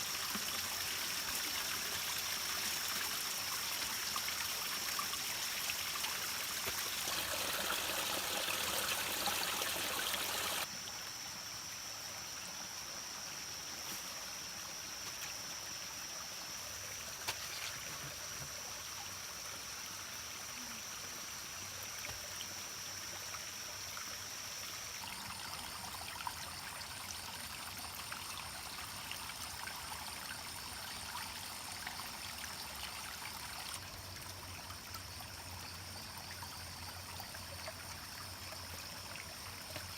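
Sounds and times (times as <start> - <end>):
water noise: 0.0 - 10.7.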